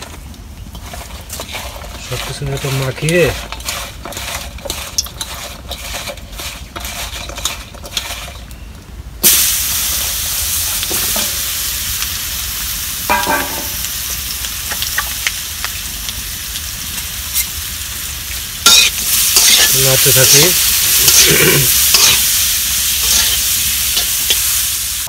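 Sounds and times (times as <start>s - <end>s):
potatoes sizzling in hot oil: 0.0s - 8.5s, 9.2s - 25.0s
potatoes mixed in steel bowl: 0.0s - 8.6s, 18.6s - 24.8s.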